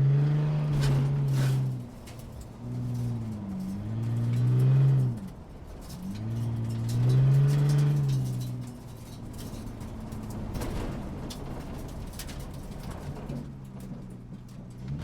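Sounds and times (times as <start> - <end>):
sports car engine accelerating: 0.0 - 1.8, 2.5 - 10.4.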